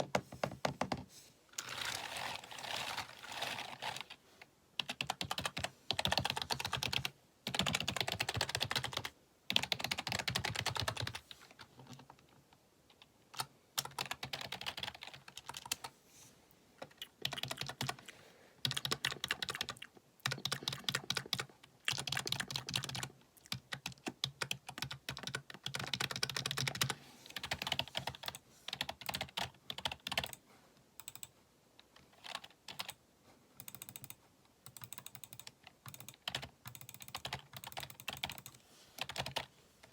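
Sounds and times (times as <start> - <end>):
keyboard typing: 4.8 - 11.2, 13.0 - 15.8, 16.8 - 18.0, 18.6 - 30.4, 31.0 - 31.3, 31.9 - 33.0, 33.6 - 39.9.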